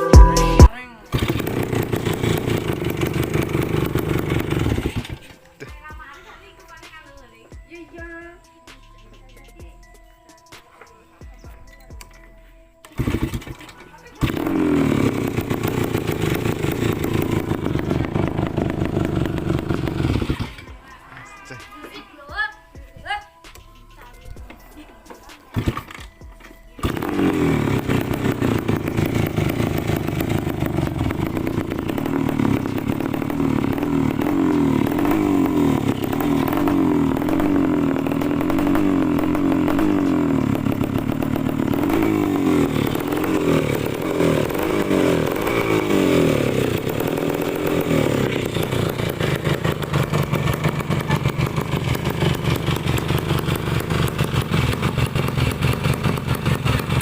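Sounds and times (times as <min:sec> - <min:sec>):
engine revving in short blips: 0:00.0 - 0:05.3, 0:12.8 - 0:20.7, 0:26.8 - 0:57.0
two-stroke motorcycle engine idling: 0:00.0 - 0:10.0, 0:12.8 - 0:21.0, 0:22.3 - 0:57.0.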